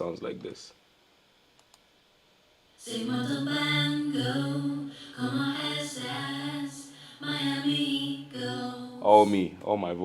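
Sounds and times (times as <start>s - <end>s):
man and woman singing together: 2.8s - 9.5s.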